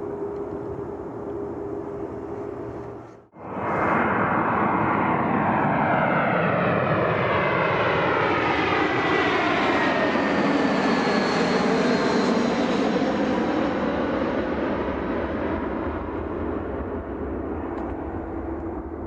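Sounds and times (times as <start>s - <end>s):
jet airliner passing: 0.0s - 19.0s.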